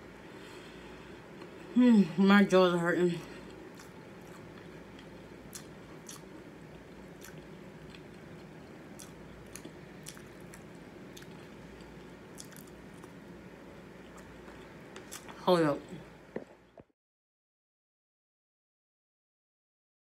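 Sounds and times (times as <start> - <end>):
person chewing crunchy cereal: 3.4 - 13.2.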